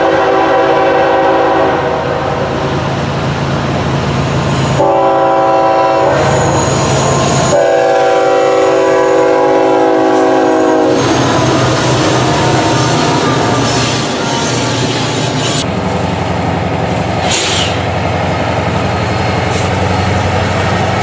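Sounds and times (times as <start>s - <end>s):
locomotive air horn: 0.0s - 2.4s, 4.7s - 6.6s, 7.4s - 15.0s
passing train rumble: 0.0s - 21.0s.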